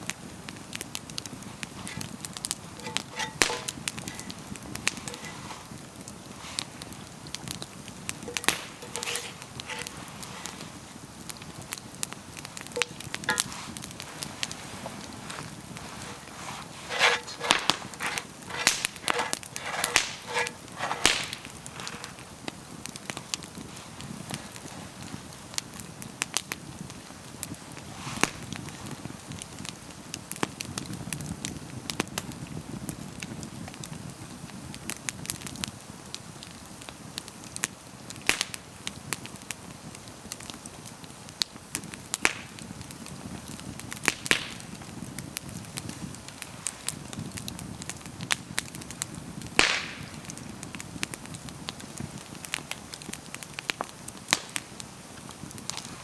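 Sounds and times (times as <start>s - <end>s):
campfire crackling and popping: 0.0s - 34.1s, 34.7s - 56.0s.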